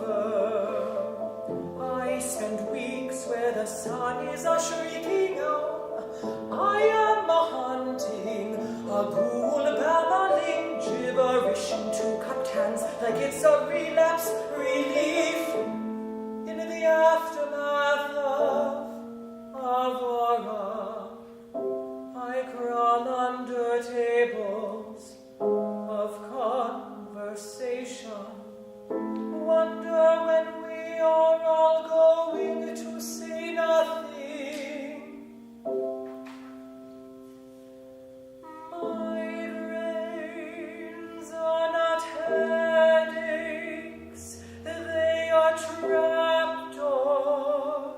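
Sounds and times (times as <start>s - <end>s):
counter-tenor singing with vibrato: 0.0s - 35.7s, 38.4s - 47.9s
sustained piano chords: 0.0s - 47.9s.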